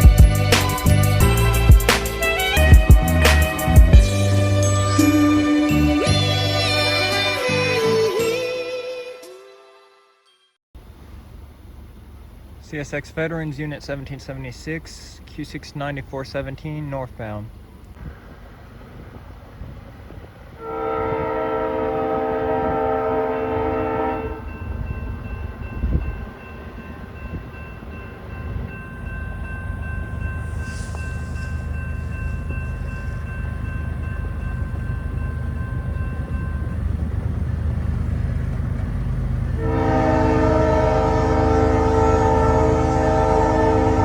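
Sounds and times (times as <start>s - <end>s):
diesel locomotive rumble: 0.0s - 7.2s, 10.8s - 44.0s
locomotive air horn blast: 20.6s - 24.6s, 39.6s - 44.0s.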